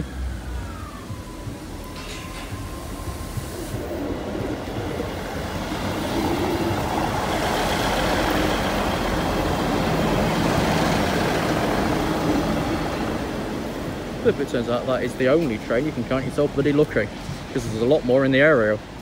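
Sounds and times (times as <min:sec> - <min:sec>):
diesel train passing: 0:00.0 - 0:19.0.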